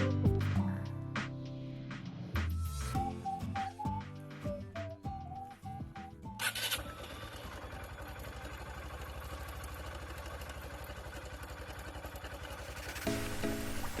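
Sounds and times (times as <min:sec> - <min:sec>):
engine idling: 0:06.4 - 0:14.0.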